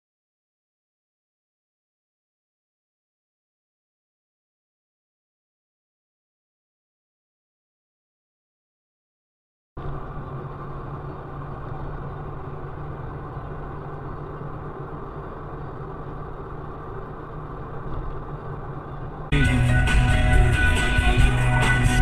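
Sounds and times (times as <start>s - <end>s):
vehicle engine running: 9.8s - 22.0s
loud music: 19.3s - 22.0s.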